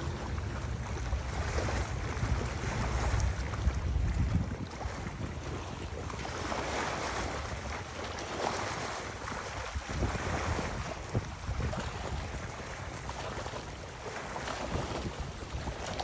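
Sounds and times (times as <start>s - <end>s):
river water rushing: 0.0s - 4.2s, 6.2s - 10.9s
wind buffeting microphone: 0.0s - 16.0s.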